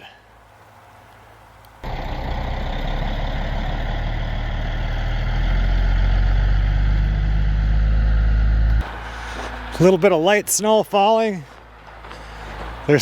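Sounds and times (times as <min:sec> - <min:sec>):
truck engine running: 0:01.8 - 0:10.1.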